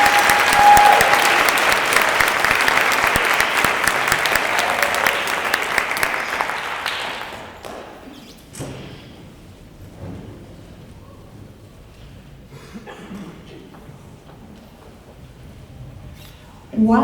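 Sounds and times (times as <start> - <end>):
audience applause: 0.0 - 8.0.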